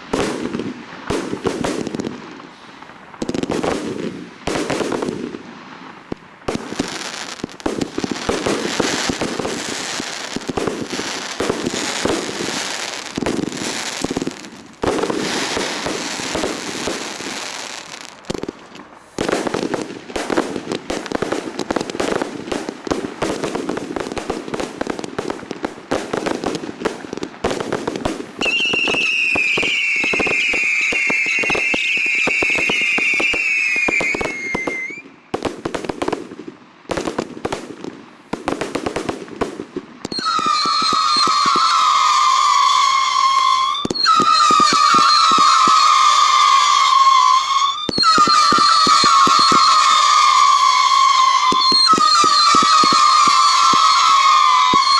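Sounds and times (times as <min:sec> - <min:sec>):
fireworks bangs and crackling: 0:00.0 - 0:54.9
firework whistles sliding down: 0:06.7 - 0:18.3, 0:28.4 - 0:35.1, 0:40.1 - 0:54.9.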